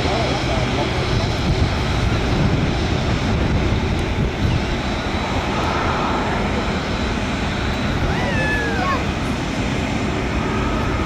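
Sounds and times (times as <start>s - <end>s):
jet engines running: 0.0s - 11.0s
faint high whine: 4.4s - 11.0s.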